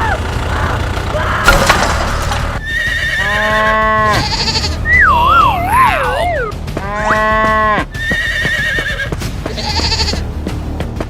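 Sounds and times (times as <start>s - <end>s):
cartoon crash: 1.4s - 2.6s.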